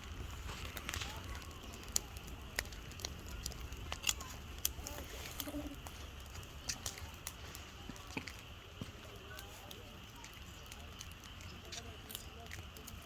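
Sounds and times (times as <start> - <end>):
sharp crackles and clicks: 0.0 - 13.0.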